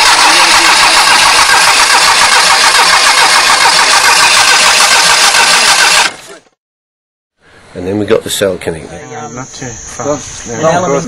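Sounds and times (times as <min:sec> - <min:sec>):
car engine cranking on starter: 0:00.0 - 0:06.4.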